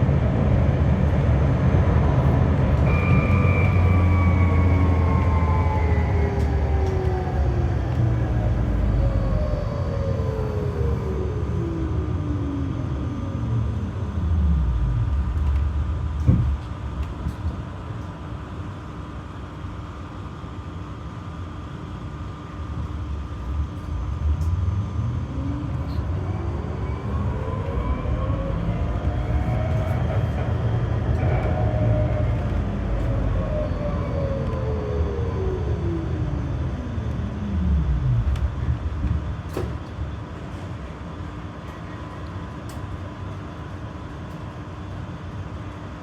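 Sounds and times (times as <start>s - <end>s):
low hum: 0.0s - 17.6s, 22.4s - 42.2s
tram stopping knock: 0.0s - 17.6s, 23.4s - 41.0s
tram motor whining: 0.0s - 18.8s, 21.7s - 43.2s.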